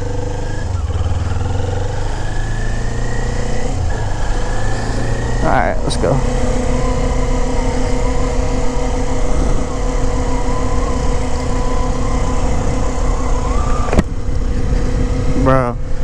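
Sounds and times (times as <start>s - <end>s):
motorcycle engine running: 0.0s - 16.0s
wind rumble on microphone: 3.5s - 16.0s.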